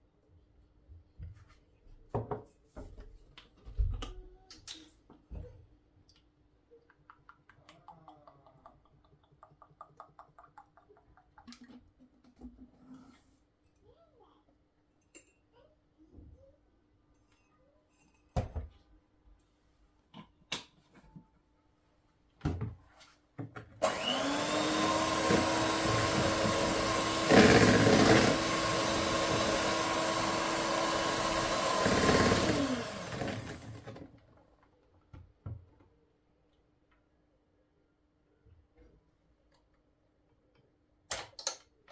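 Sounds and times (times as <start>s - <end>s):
kitchen appliance motor whirring: 23.8s - 34.0s.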